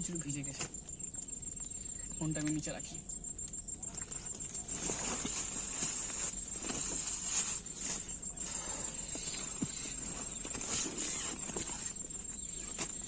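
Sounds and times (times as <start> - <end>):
crickets trilling: 0.0 - 13.0
rustling: 3.8 - 13.0.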